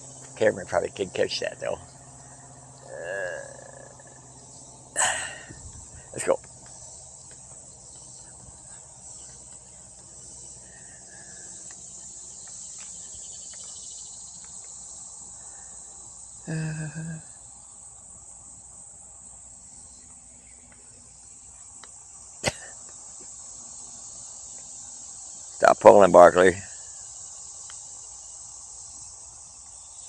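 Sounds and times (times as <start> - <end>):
high-pitched insect chorus: 0.0 - 30.0
low voice-like sound: 2.9 - 4.1.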